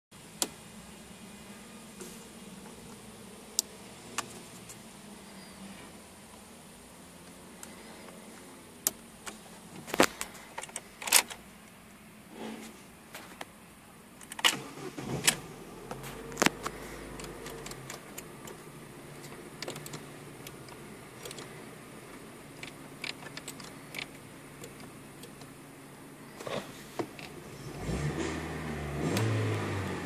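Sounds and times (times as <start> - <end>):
key and ignition clicks: 10.5 - 11.4, 14.2 - 21.5, 22.5 - 25.6
car engine idling: 12.9 - 30.0.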